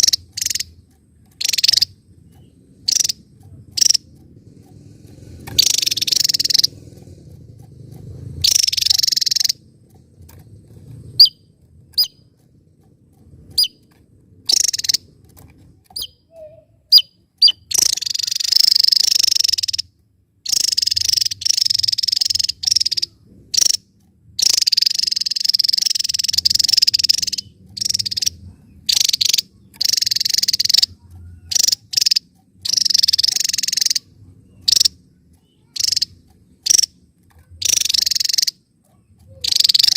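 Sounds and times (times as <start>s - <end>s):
bird chattering high-pitched: 0.0s - 10.4s, 11.0s - 12.5s, 13.5s - 39.9s
single bird chips: 13.4s - 19.9s, 20.5s - 39.9s.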